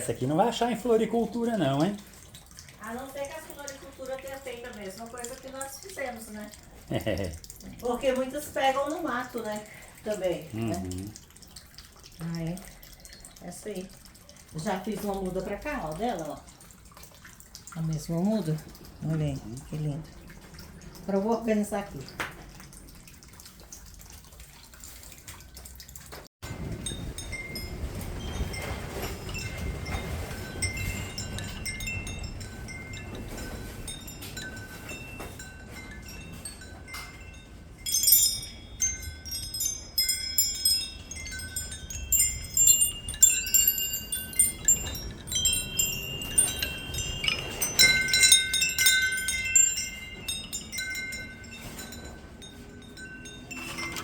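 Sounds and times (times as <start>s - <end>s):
wind chime ringing: 26.5s - 54.0s.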